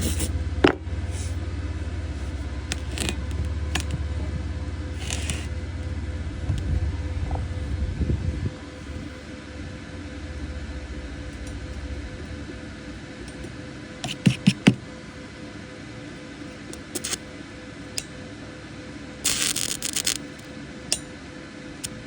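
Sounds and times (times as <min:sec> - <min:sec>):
rough rasping: 0:00.0 - 0:00.4
faint steady hum: 0:00.0 - 0:22.0.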